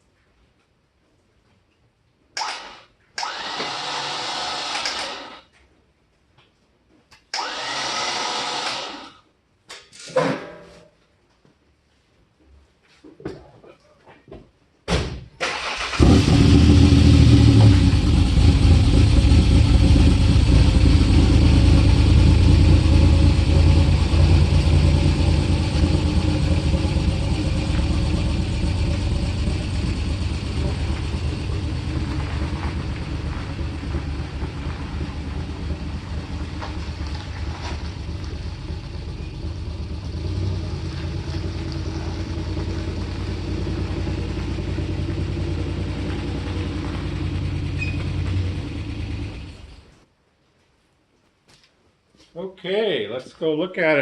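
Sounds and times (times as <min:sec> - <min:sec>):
car engine starting and running: 0:02.4 - 0:05.4, 0:07.3 - 0:09.0, 0:15.4 - 0:50.0.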